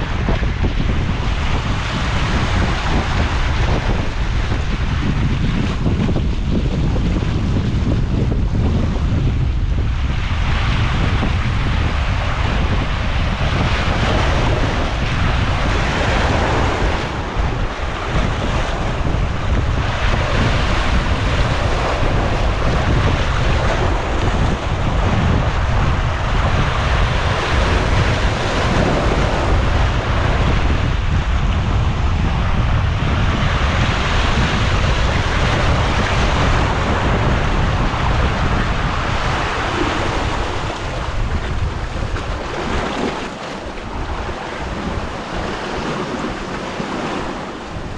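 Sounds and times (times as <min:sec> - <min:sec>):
wind buffeting microphone: 0:00.0 - 0:47.9
sea waves against rocks: 0:10.1 - 0:30.7, 0:33.6 - 0:47.9.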